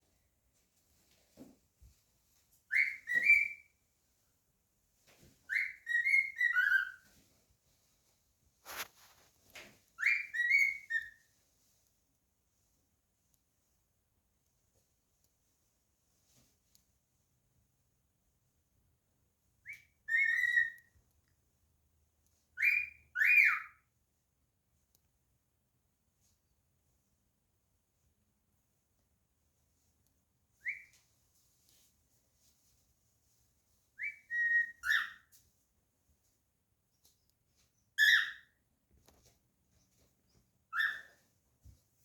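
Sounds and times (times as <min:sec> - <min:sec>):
cockatiel whistling: 0:02.7 - 0:03.7, 0:05.5 - 0:07.0, 0:10.0 - 0:11.2, 0:19.7 - 0:20.9, 0:22.6 - 0:23.8, 0:30.6 - 0:30.9, 0:34.0 - 0:35.2, 0:38.0 - 0:38.5, 0:40.7 - 0:41.2.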